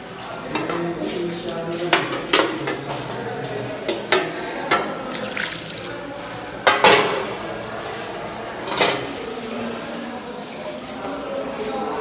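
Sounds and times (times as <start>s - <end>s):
tap water running onto metal tray: 4.7s - 6.8s.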